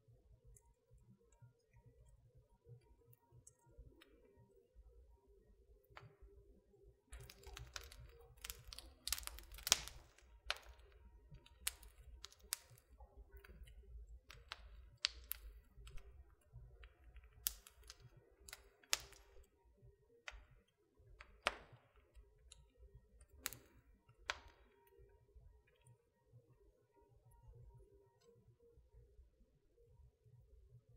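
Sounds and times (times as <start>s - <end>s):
wood fire crackling and popping: 7.1s - 19.6s, 20.2s - 24.9s.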